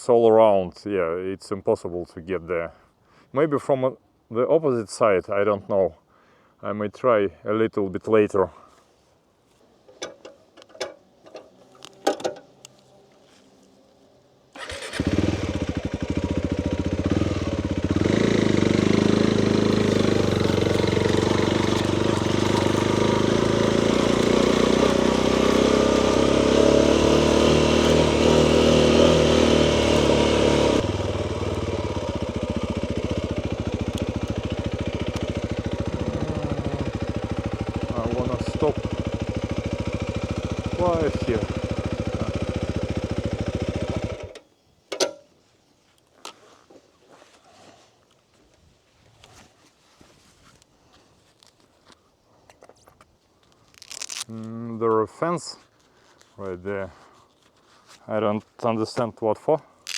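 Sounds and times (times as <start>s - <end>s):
motorcycle engine running: 14.6s - 44.4s.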